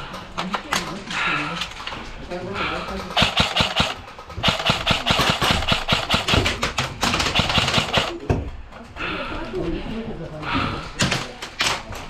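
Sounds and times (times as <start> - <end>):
airsoft gunfire: 3.1 - 8.3.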